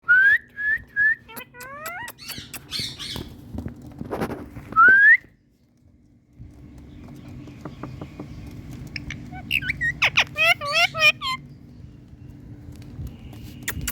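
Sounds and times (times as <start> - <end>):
steady low hum: 0.4 - 13.9
parrot clicks and chatter: 1.2 - 3.3, 8.3 - 11.4, 13.6 - 13.9
parrot squawking: 1.2 - 3.3, 9.0 - 11.5.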